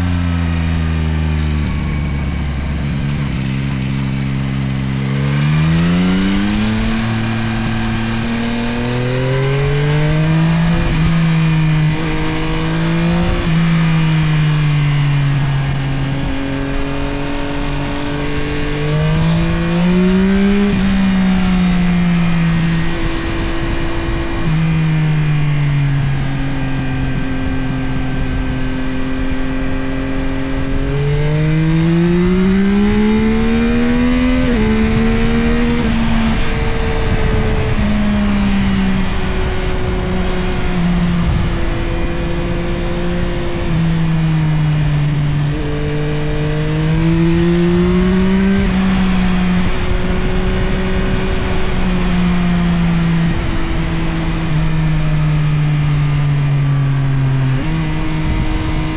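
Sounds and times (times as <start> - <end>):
motorcycle engine accelerating: 0.0 - 58.9
wind rushing past: 31.0 - 56.1.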